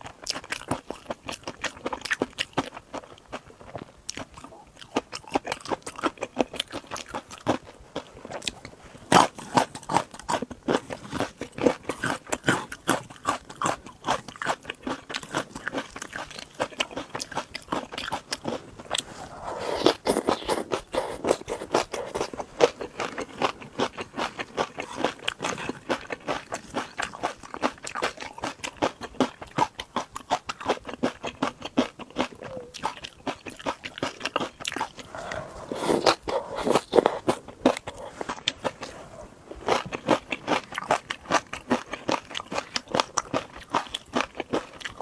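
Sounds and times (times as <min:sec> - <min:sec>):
person chewing crunchy food: 0:00.0 - 0:45.0.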